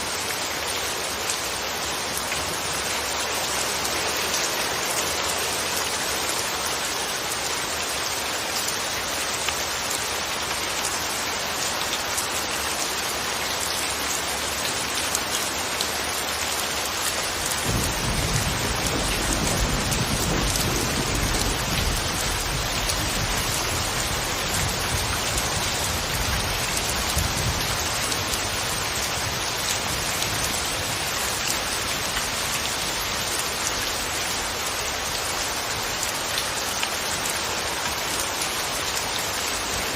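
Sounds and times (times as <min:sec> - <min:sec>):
rain hissing: 0:17.2 - 0:36.3
thunder rumbling: 0:17.6 - 0:25.2.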